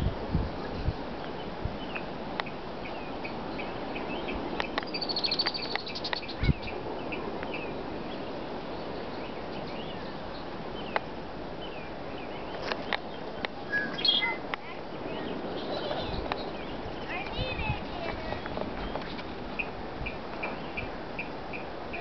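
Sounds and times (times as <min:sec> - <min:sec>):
background hiss: 0:00.0 - 0:22.0
bird trill: 0:02.9 - 0:07.7, 0:13.7 - 0:14.4.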